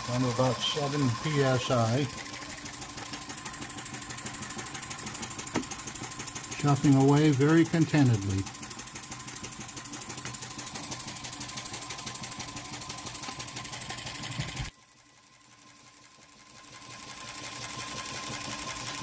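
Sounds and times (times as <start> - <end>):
steam engine chuffing: 0.0 - 14.7, 16.6 - 19.0.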